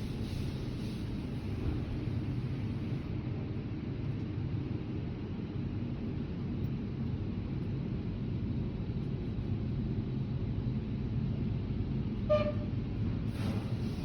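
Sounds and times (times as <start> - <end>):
car wash rumble and hiss: 0.0 - 6.6, 13.0 - 14.0.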